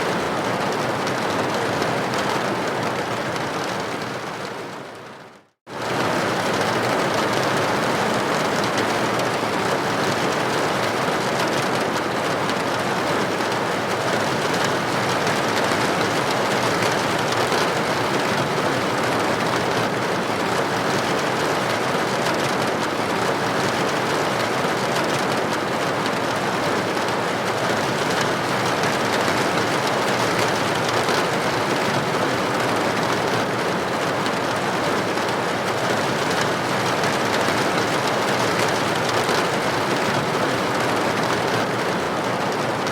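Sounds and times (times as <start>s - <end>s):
rain hissing on a window: 0.0s - 42.9s.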